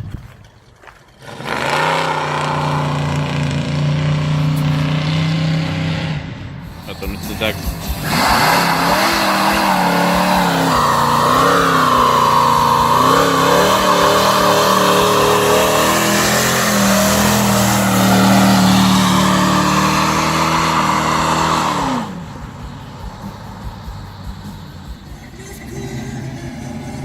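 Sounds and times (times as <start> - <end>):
car engine revving: 0.4 - 27.0
tyres squealing: 6.7 - 22.7.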